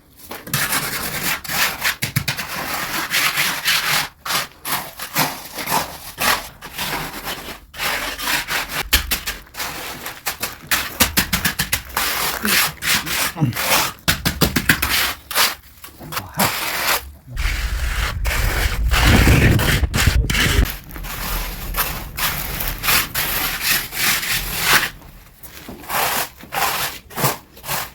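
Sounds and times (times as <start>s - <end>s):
tool scraping hard surface: 14.8s - 27.9s
low rumble: 16.0s - 26.1s.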